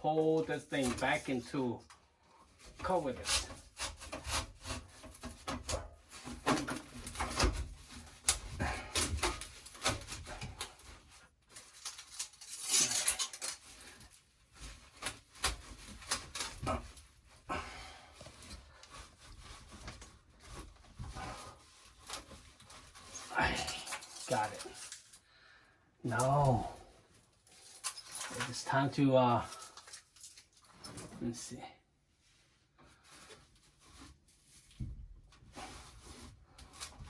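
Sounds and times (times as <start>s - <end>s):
rough metal scrape: 2.5s - 25.2s.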